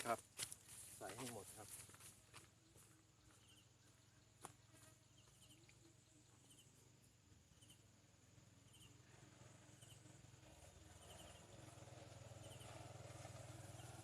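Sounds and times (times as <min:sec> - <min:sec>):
insects droning and chirping: 0:00.0 - 0:14.0.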